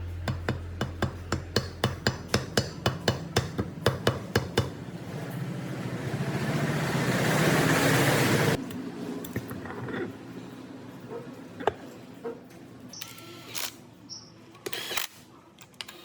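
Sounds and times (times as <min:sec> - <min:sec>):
hammer strikes: 0:00.2 - 0:04.9.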